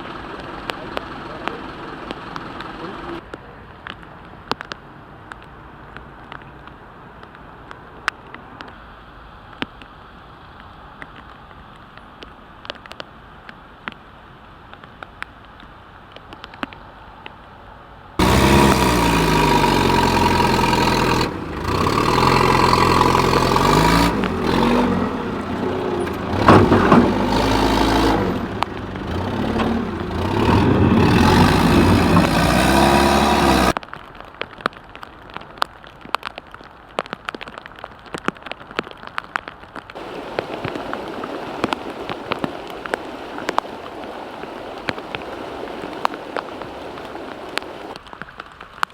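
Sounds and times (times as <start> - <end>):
rain falling: 0.0 - 16.8, 18.2 - 48.9
heavy rushing noise: 18.2 - 33.8, 40.0 - 48.0
vehicle engine running loudly: 18.2 - 33.8.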